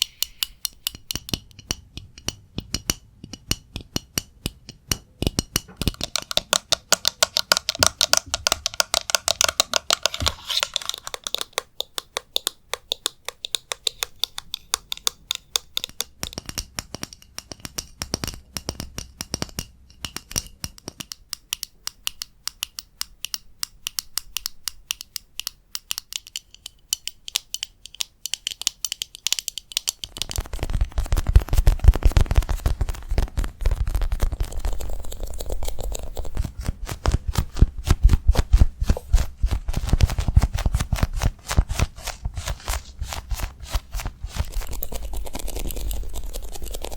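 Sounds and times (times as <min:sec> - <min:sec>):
tapping on hard objects: 0:00.0 - 0:34.8
close rustling noise: 0:30.2 - 0:46.9.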